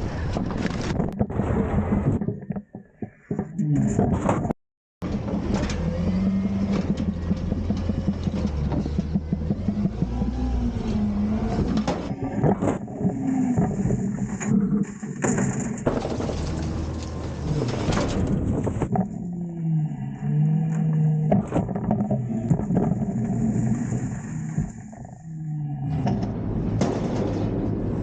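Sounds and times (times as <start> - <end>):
garbage truck engine revving: 5.0 - 28.0
metallic clanks and knocks: 26.1 - 27.8.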